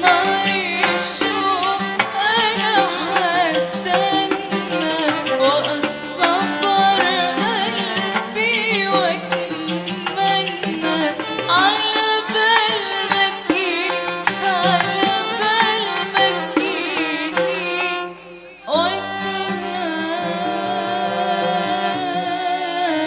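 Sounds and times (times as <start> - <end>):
hand drum rhythm: 0.0 - 18.2
wavering instrumental melody: 0.0 - 23.0.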